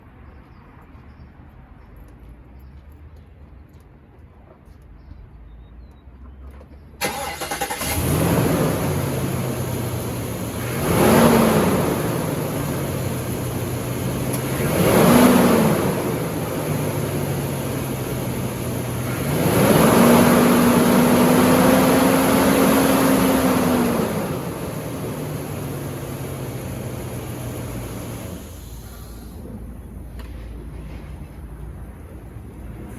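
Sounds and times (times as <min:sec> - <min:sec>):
van engine idling and revving: 0:07.0 - 0:32.9.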